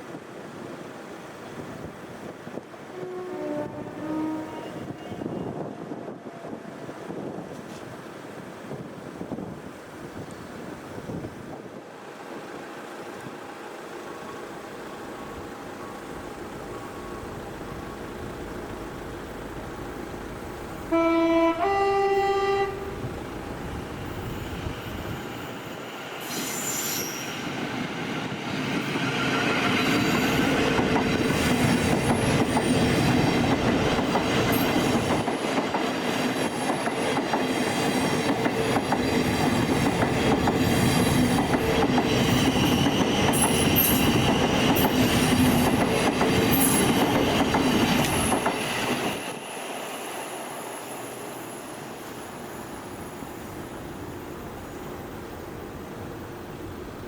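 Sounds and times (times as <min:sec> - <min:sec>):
train two-tone horn: 0:02.8 - 0:06.2, 0:20.7 - 0:23.2
train wheels rumbling on rails: 0:22.4 - 0:57.0.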